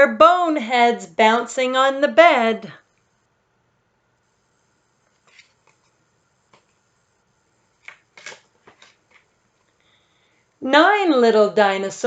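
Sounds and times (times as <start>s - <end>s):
book pages rustling and tapping: 5.0s - 6.8s, 7.8s - 9.8s.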